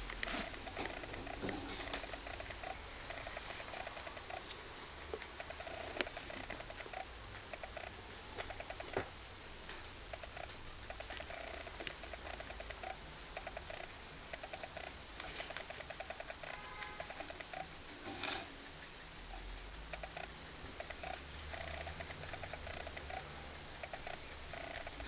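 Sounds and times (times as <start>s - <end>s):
dry stalks crackling: 0.0s - 9.0s
rabbit chewing hay: 0.0s - 25.0s.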